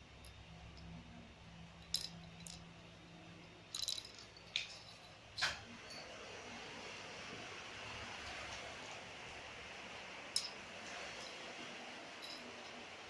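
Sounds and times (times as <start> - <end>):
small bell jingling: 12.2 - 12.6.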